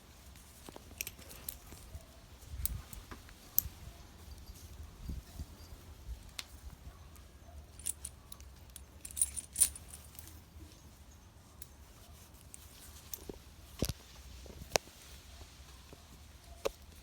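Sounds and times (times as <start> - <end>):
small metal parts jingling: 0.7 - 1.9, 7.7 - 10.5.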